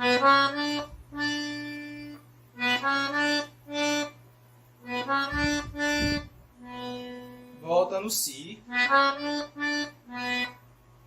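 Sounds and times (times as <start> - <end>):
accordion melody: 0.0 - 10.8
low bass notes: 4.8 - 7.6.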